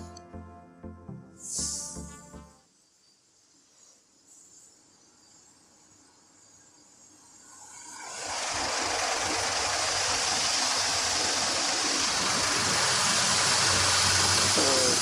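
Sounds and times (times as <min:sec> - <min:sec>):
car wash water spray hissing: 0:07.8 - 0:15.0.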